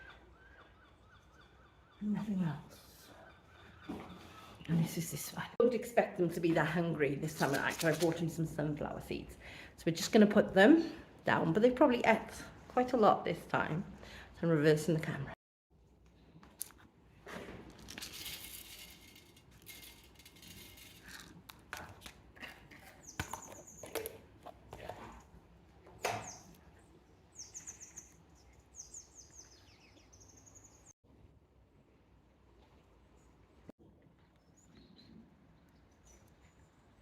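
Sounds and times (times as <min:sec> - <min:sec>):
handling rustles and knocks: 0:16.4 - 0:22.2
small birds chirping: 0:26.0 - 0:31.0, 0:34.2 - 0:37.0.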